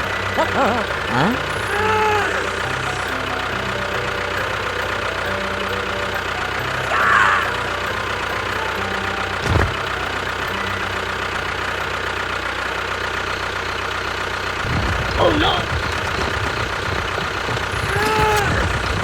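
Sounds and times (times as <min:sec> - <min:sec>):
small vehicle engine running: 0:00.0 - 0:19.0
thump: 0:09.4 - 0:09.8.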